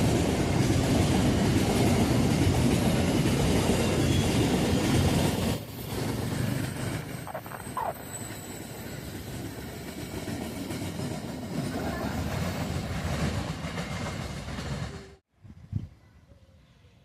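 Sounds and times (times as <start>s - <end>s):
train wheels rumbling on rails: 0.0s - 15.3s.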